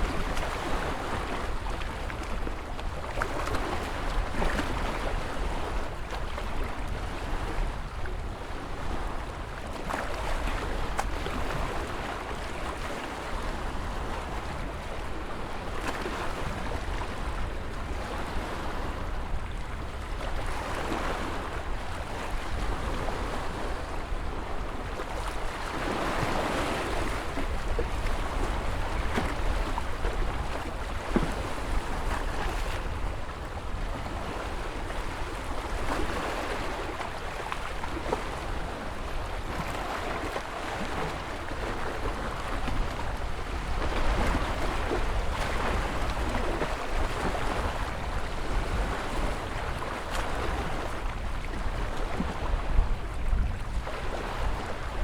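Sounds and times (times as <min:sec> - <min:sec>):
ocean waves breaking: 0:00.0 - 0:55.0.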